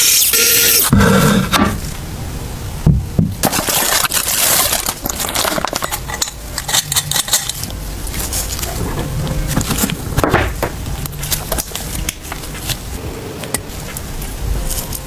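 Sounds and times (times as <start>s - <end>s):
metal parts clinking and knocking: 5.0s - 7.8s.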